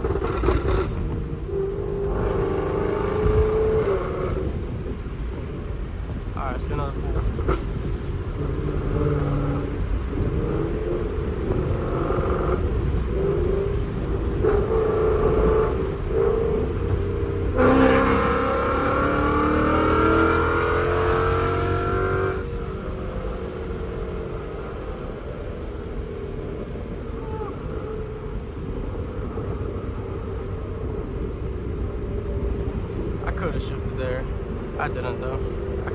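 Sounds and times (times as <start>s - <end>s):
car engine cruising: 0.0s - 35.9s
exhaust note climbing in pitch: 13.9s - 28.7s.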